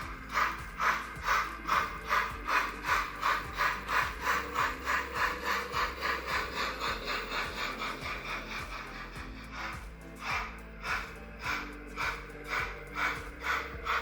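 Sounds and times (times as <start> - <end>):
model locomotive steam chuffs: 0.0 - 14.0.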